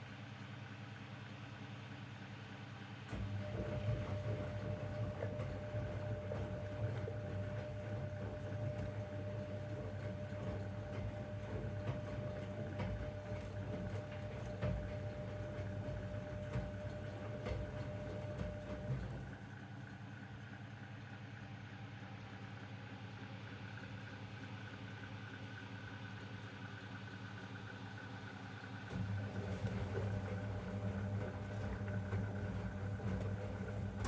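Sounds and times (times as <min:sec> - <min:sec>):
washing machine motor hum: 0:03.2 - 0:19.7, 0:28.6 - 0:34.0.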